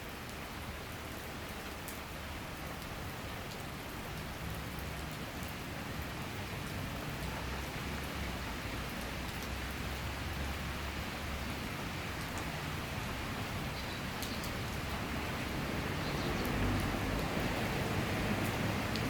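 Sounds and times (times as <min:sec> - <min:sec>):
rain falling: 0:00.0 - 0:19.0
raindrops ticking: 0:11.6 - 0:19.0.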